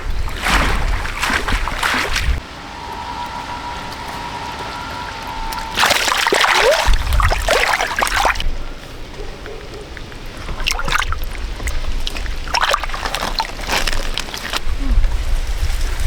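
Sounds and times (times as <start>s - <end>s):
water splashing and sloshing: 0.0s - 14.8s
low rumble: 1.6s - 8.6s.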